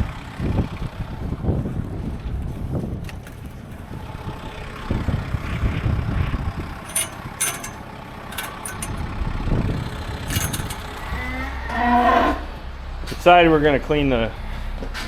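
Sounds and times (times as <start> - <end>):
tractor engine rumbling: 2.3 - 11.6.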